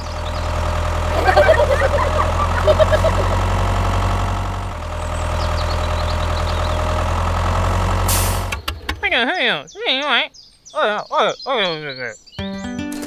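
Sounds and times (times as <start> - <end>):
tractor engine idling: 0.0 - 10.1.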